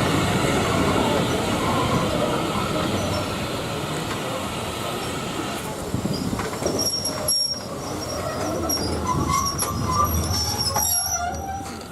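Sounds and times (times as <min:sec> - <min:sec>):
train coaches rumbling on rails: 0:00.0 - 0:11.9
high wheel squeals: 0:06.1 - 0:11.9.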